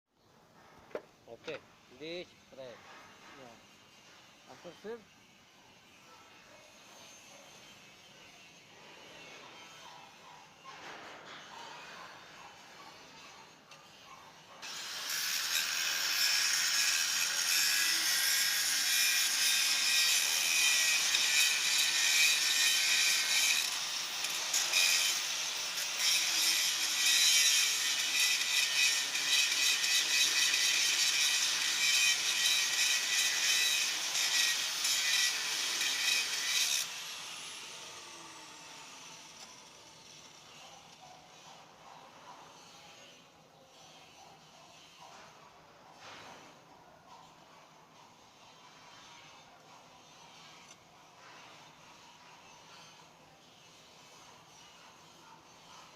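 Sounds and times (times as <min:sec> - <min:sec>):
power tool cutting metal pipe: 0:13.8 - 0:41.1.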